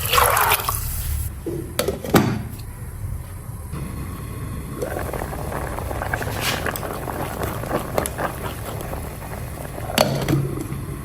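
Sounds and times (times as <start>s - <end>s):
food bubbling in a pot: 0.0s - 11.0s.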